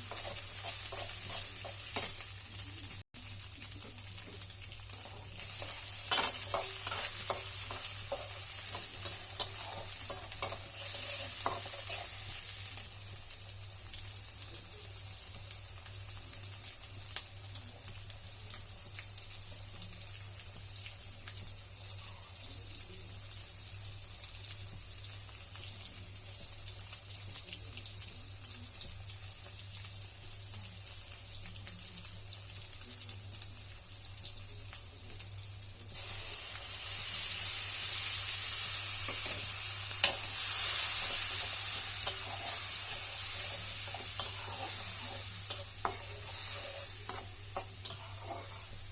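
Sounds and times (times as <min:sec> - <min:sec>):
spatula scraping a pan: 0:00.0 - 0:02.3, 0:05.0 - 0:12.6, 0:39.0 - 0:48.9
food sizzling in a hot pan: 0:00.0 - 0:48.9.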